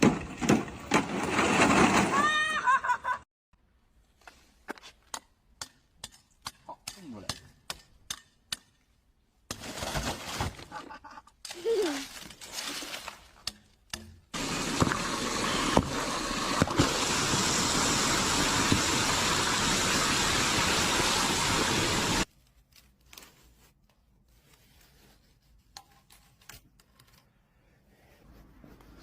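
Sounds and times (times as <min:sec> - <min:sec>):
running water rushing: 0:14.4 - 0:22.2.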